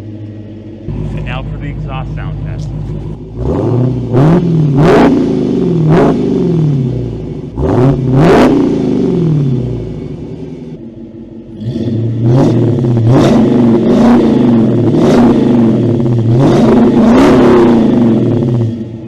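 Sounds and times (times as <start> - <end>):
car engine idling: 0.0 - 4.8, 9.6 - 13.1
engine revving: 0.9 - 10.7, 11.5 - 19.0.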